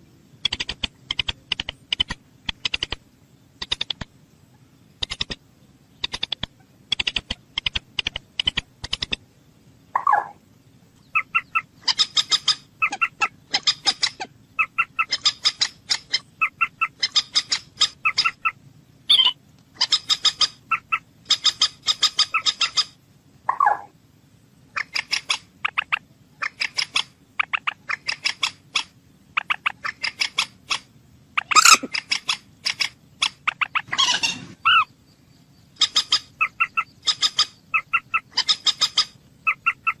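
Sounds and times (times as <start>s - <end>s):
moorhen clucking: 0.3s - 3.0s, 3.6s - 9.3s, 9.9s - 10.4s, 11.0s - 23.9s, 24.7s - 35.0s, 35.6s - 40.0s.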